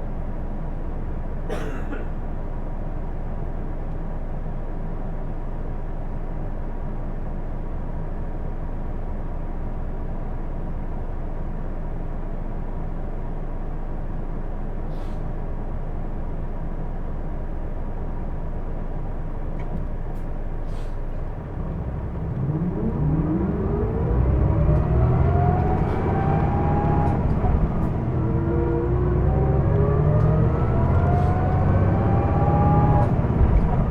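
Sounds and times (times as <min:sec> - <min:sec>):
bus diesel engine: 0:00.0 - 0:33.9
engine whine: 0:20.7 - 0:33.9.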